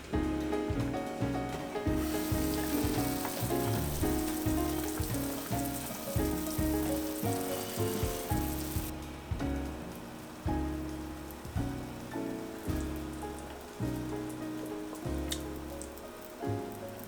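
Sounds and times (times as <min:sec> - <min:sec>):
background music: 0:00.0 - 0:17.0
food sizzling in a frying pan: 0:02.0 - 0:09.0.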